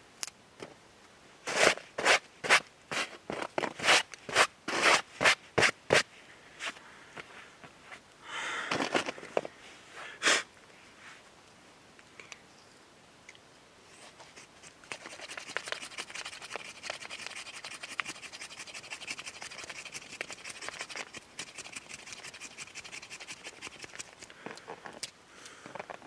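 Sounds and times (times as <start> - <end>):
knife shaving and scraping wood: 1.5 - 6.0, 14.0 - 25.1.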